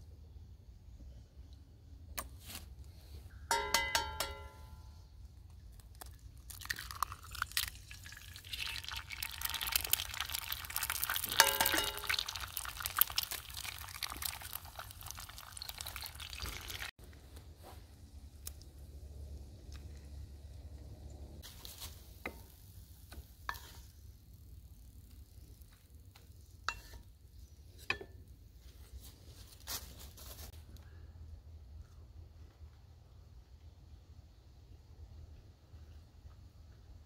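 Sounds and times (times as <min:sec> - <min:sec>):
ringing metallic clinks: 0:03.5 - 0:05.0
oil and eggs sizzling in skillet: 0:06.5 - 0:16.9, 0:21.4 - 0:28.0.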